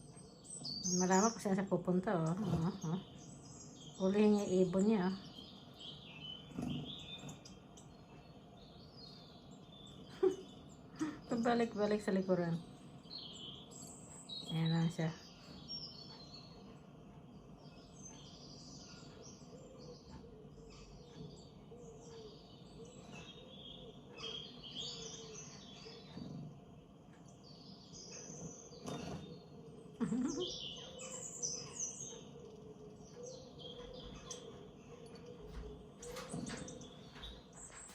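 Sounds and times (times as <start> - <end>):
faint steady hum: 0.0 - 37.9
small birds chirping: 0.0 - 37.9.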